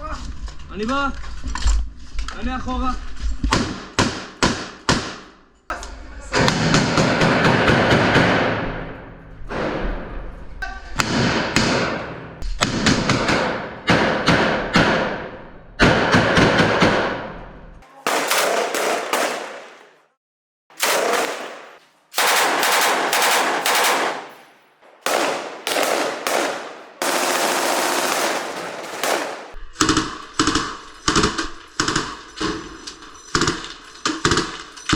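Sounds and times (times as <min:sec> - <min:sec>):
automatic gunfire: 0:18.0 - 0:20.0, 0:20.8 - 0:24.4, 0:25.0 - 0:29.6.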